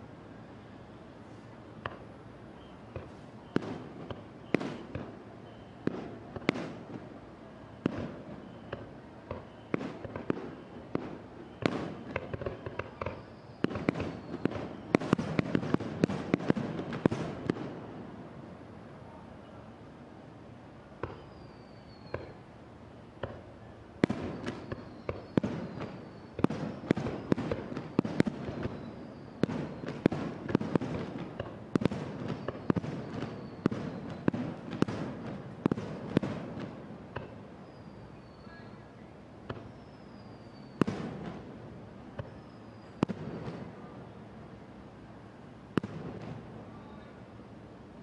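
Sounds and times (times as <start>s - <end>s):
fireworks bursting: 0.6s - 18.4s, 20.9s - 22.5s, 23.1s - 38.8s, 39.4s - 44.4s, 45.7s - 47.1s
falling whistles: 4.4s - 5.9s, 7.7s - 15.8s, 21.1s - 22.4s, 24.1s - 30.1s, 32.2s - 34.4s, 37.6s - 41.0s, 42.1s - 43.6s.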